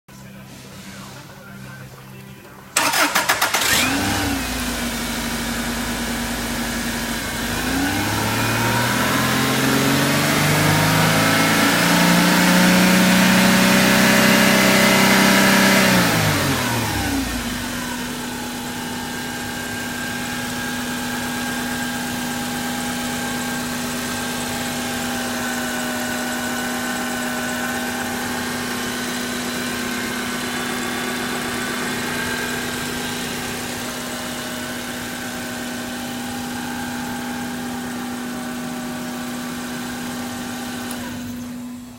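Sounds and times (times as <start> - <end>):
car engine idling and revving: 2.8 - 41.9.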